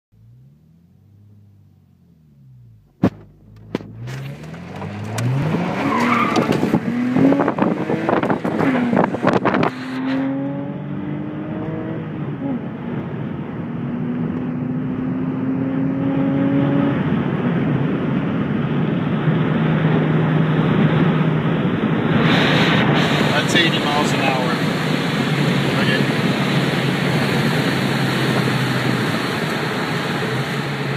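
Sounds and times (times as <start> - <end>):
car engine accelerating: 0.1 - 30.9
tyres on gravel: 3.0 - 6.9.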